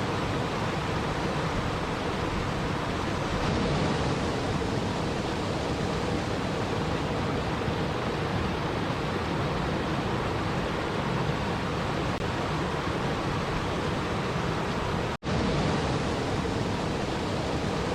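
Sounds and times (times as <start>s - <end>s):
rushing water: 0.0s - 17.9s.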